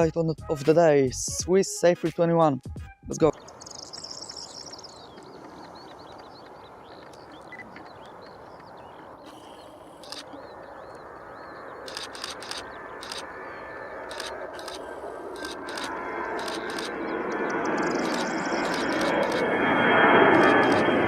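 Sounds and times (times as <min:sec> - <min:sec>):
birds chirping: 0:03.1 - 0:19.8
jet engine roaring: 0:03.4 - 0:21.0
camera shutter bursts: 0:09.3 - 0:10.3, 0:11.9 - 0:17.1, 0:17.8 - 0:19.5, 0:20.3 - 0:20.9.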